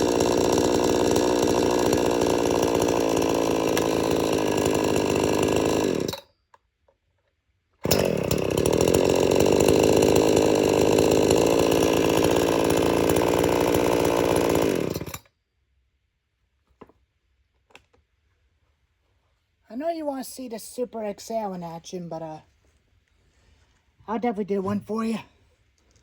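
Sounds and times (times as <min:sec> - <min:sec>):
chainsaw engine running: 0:00.0 - 0:06.2, 0:07.8 - 0:15.3.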